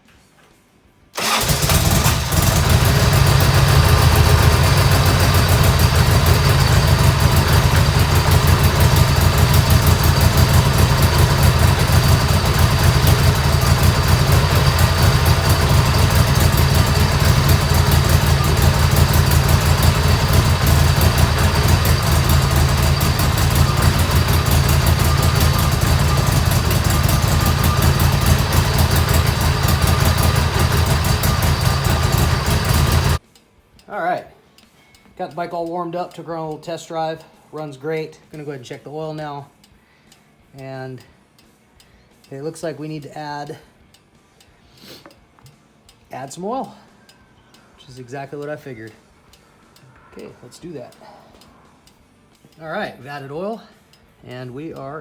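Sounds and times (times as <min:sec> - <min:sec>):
motorcycle engine idling: 0:01.2 - 0:33.2.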